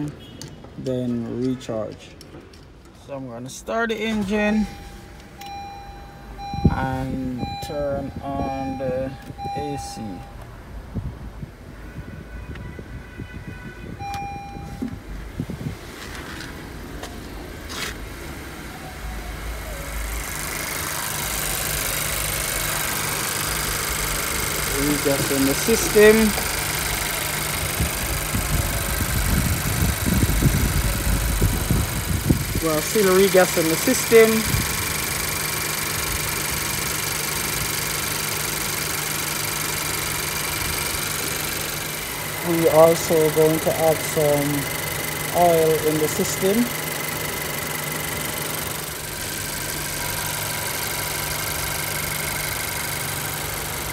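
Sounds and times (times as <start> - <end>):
car engine idling: 1.8 - 11.6, 14.0 - 53.9
short beep: 4.0 - 10.6, 14.0 - 15.0.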